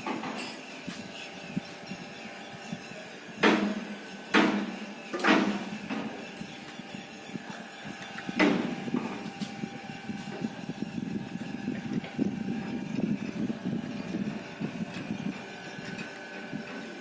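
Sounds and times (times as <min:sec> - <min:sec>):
sharp metal knocks: 0:03.4 - 0:06.1.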